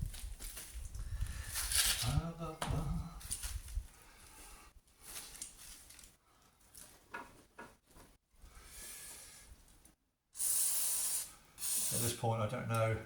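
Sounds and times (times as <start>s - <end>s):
aerosol spray hiss: 10.4s - 12.2s.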